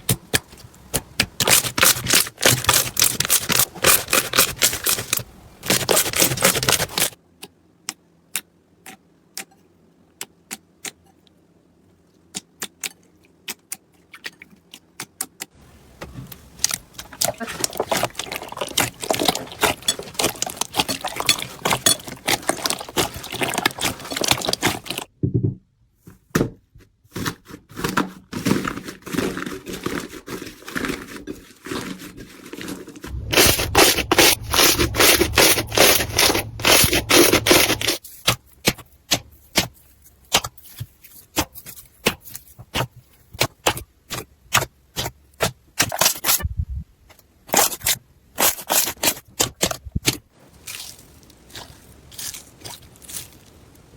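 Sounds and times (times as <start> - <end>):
slime crackling and popping: 0.3 - 7.2, 16.6 - 25.1.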